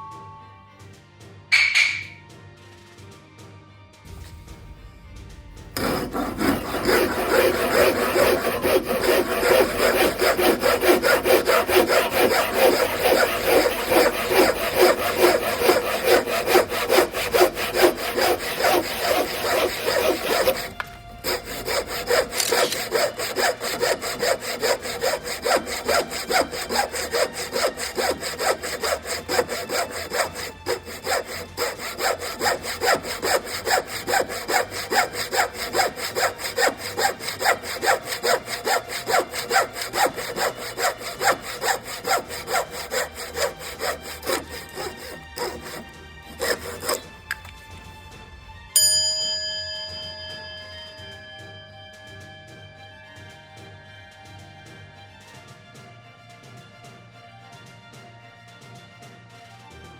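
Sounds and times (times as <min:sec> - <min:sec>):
handsaw cutting wood: 0:05.8 - 0:47.5.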